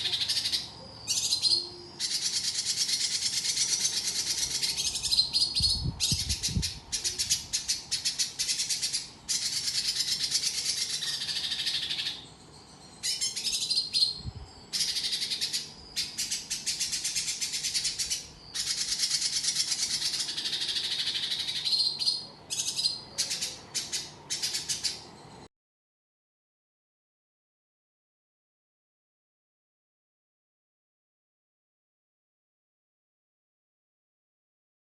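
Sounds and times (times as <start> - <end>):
songbird rapid rattling chatter: 0.0 - 25.4.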